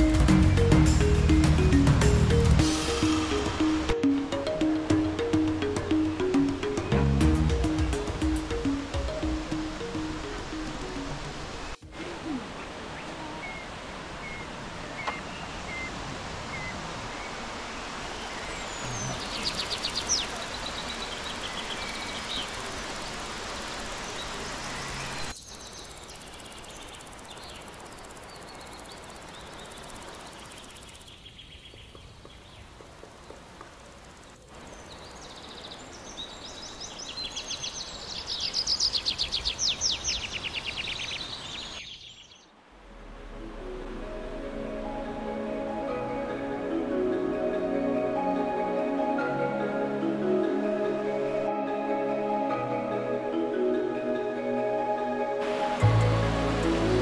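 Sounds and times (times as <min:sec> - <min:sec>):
background hiss: 0:00.0 - 0:57.0
bird chirps and trills: 0:18.1 - 0:32.7, 0:34.7 - 0:42.5.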